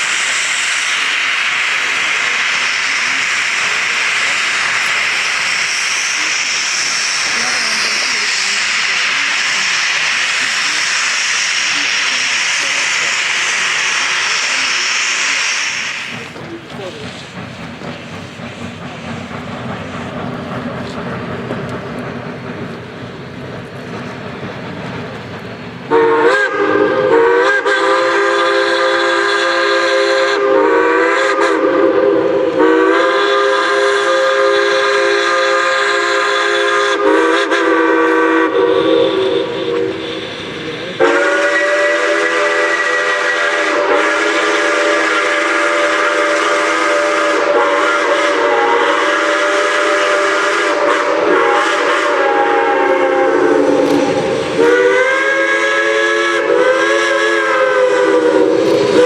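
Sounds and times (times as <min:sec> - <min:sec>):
hiss of steam: 0:00.0 - 0:59.0
steam locomotive whistle blasts: 0:25.9 - 0:59.0.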